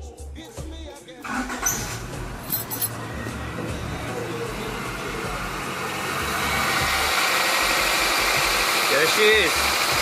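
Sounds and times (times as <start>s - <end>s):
car engine running: 1.9s - 10.0s.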